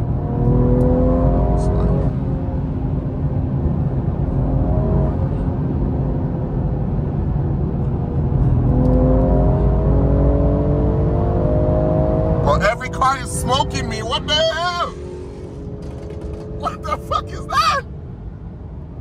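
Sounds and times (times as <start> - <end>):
car engine accelerating: 0.0 - 17.9
road and tyre rumble: 0.0 - 19.0.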